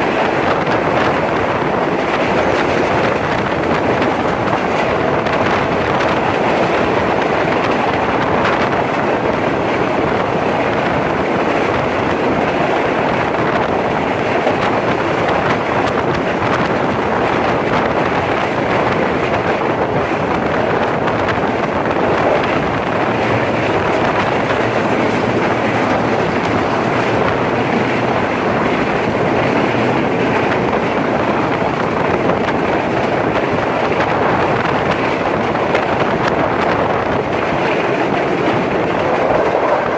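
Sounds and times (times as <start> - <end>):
train wheels on track: 0.0 - 39.9
wind buffeting microphone: 0.0 - 39.9.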